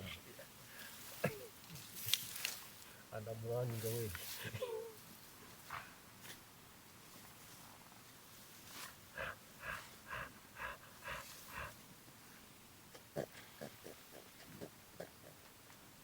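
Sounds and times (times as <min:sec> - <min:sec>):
gorilla panting grunts: 0:09.1 - 0:11.8, 0:13.0 - 0:15.5.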